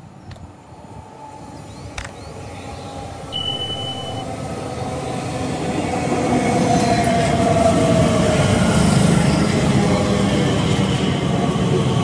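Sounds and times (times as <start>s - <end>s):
train wheel and rail rumble: 0.0s - 12.0s
short high tone: 3.4s - 4.2s
train motor whine: 3.4s - 4.2s.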